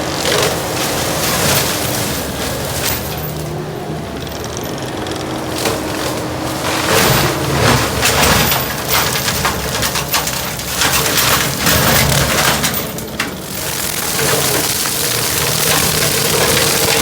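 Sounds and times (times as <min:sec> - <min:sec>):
engine and cutter drone: 0:00.0 - 0:09.4, 0:10.0 - 0:17.0
wood cracking and splintering: 0:00.0 - 0:17.0.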